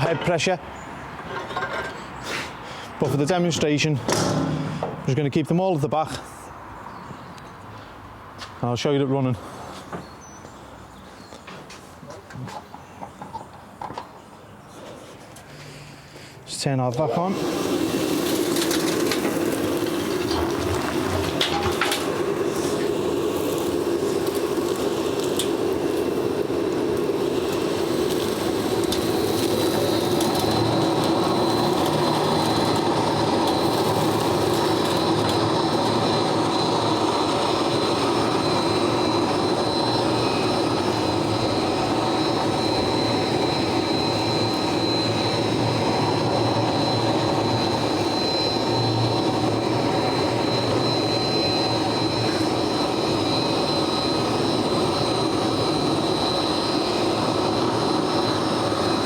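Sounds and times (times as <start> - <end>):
floor grinder drone: 4.0 - 5.4, 17.1 - 59.0
high whine: 18.2 - 59.0.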